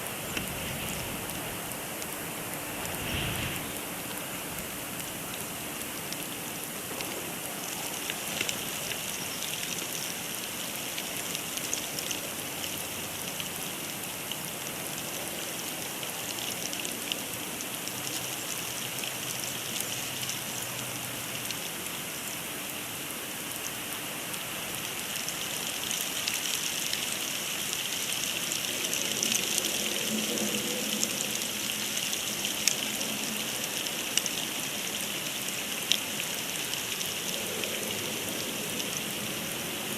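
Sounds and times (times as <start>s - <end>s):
snow hissing on microphone: 0.0s - 5.6s.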